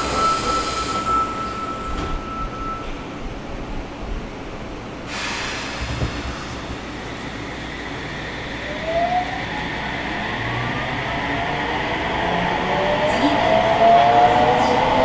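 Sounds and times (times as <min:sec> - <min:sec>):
hiss: 0:05.1 - 0:08.5
train motor whine rising: 0:05.5 - 0:15.0.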